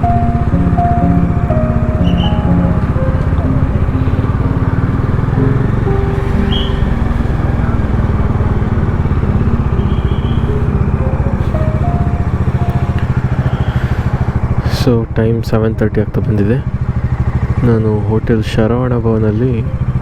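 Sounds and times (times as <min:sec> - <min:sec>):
brief high tones: 0:00.0 - 0:13.9
motorcycle engine at speed: 0:00.0 - 0:20.0.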